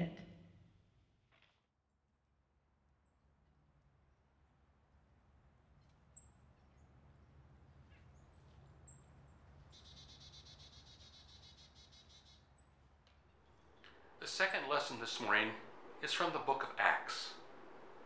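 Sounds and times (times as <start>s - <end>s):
low steady hum: 2.5s - 18.0s
faint bird chirps: 7.8s - 18.0s
bird trill: 9.6s - 18.0s.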